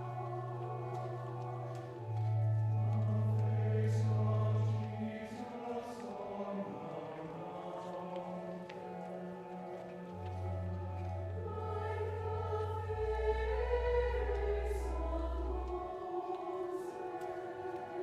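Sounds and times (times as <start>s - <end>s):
choir singing slowly: 0.0s - 18.0s
low sustained bass notes: 10.4s - 15.9s.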